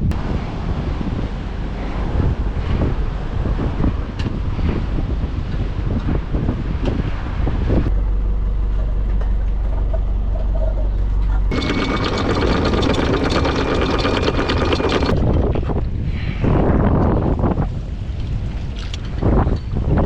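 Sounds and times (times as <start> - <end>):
engine rattling: 0.0 - 16.0
boat engine humming: 7.2 - 15.7
high whine: 7.4 - 15.4.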